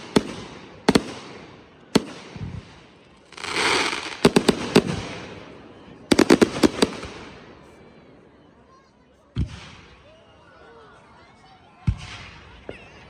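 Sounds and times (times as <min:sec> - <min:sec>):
fireworks bangs: 0:00.0 - 0:07.8
firework hissing rush: 0:03.3 - 0:05.1.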